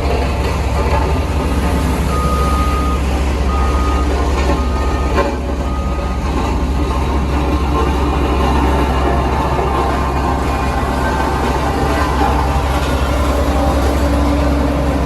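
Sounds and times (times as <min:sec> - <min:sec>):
diesel machinery engine rumbling: 0:00.0 - 0:15.0
reversing alarm beeping: 0:02.0 - 0:06.6, 0:08.4 - 0:14.5.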